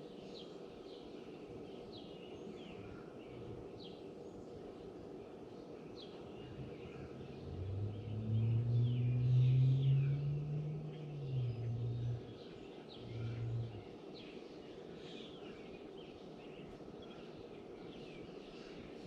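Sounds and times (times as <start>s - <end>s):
small birds chirping: 0.3s - 19.0s
vehicle engine droning past: 6.3s - 14.0s.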